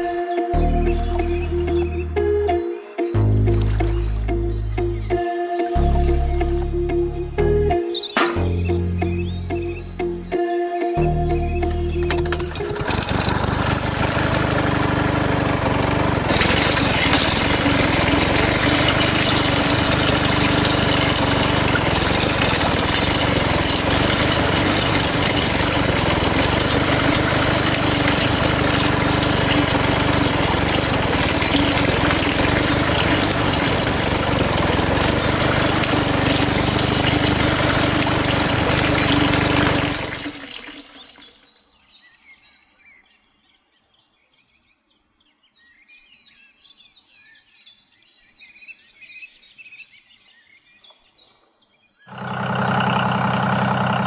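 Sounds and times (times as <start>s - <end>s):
water pump motor running: 0.0s - 2.1s, 3.4s - 5.0s, 5.8s - 6.8s, 11.7s - 41.4s, 52.1s - 54.0s
water gushing and splashing: 0.9s - 1.9s, 3.4s - 4.4s, 12.0s - 41.5s, 52.1s - 54.0s.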